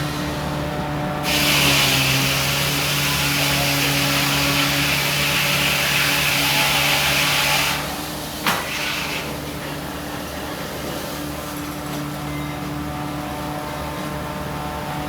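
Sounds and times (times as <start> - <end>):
machinery hissing: 0.0 - 7.9.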